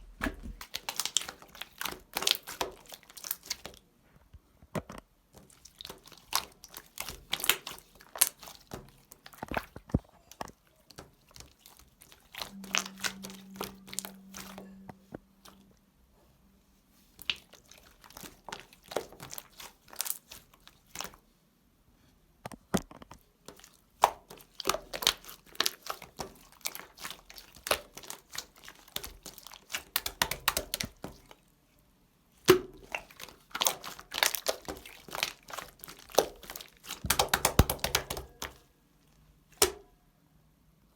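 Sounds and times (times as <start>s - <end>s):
slime clicking and crackling: 0.5s - 3.8s, 5.4s - 15.6s, 17.2s - 21.2s, 23.5s - 31.4s, 32.4s - 38.6s.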